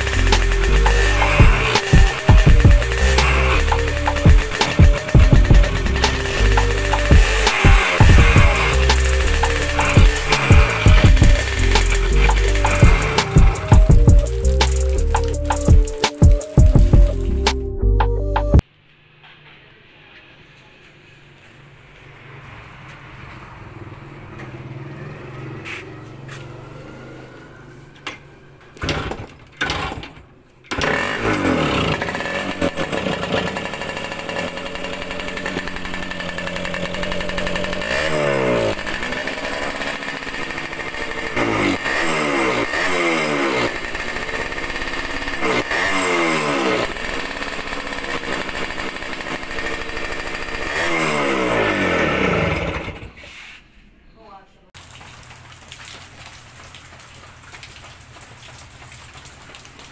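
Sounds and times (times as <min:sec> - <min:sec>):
two-stroke engine revving: 0:00.0 - 0:17.6, 0:30.7 - 0:53.3.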